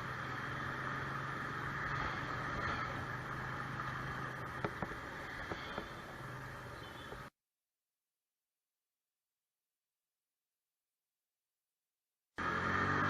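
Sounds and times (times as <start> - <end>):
road and wind noise: 0.0 - 7.3, 12.4 - 13.0
vehicle engine running: 0.0 - 7.3, 12.4 - 13.0.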